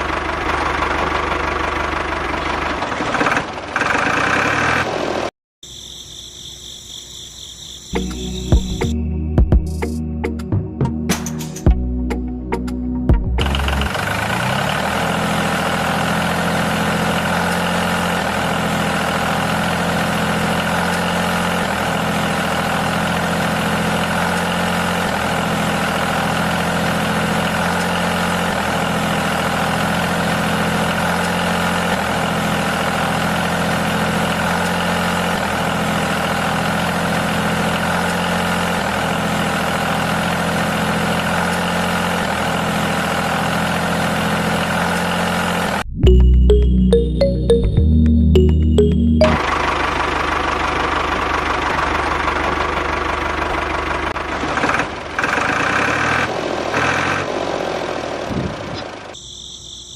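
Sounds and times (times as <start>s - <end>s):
engine idling with faint hitch: 0.0s - 5.2s, 49.4s - 59.2s.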